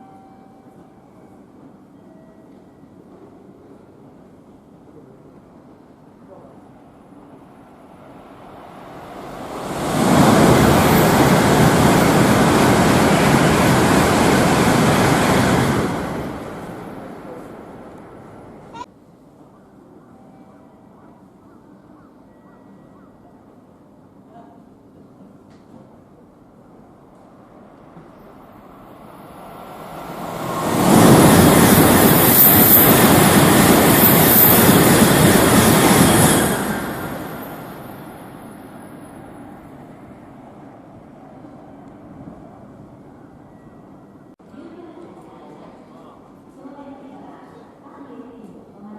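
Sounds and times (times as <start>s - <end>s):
high-speed train rushing past: 3.1s - 18.9s, 25.6s - 43.9s.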